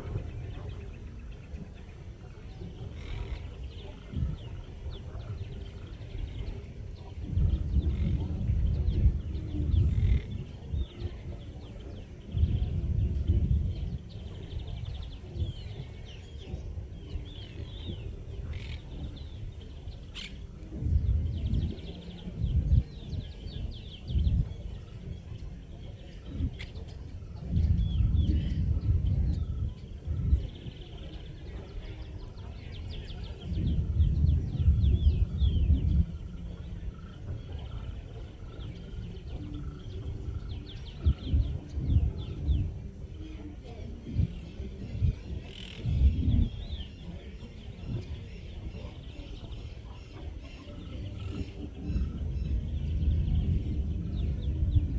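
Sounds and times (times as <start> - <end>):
birds chirping and trilling: 0.0 - 54.9
low rumbles: 50.5 - 54.9.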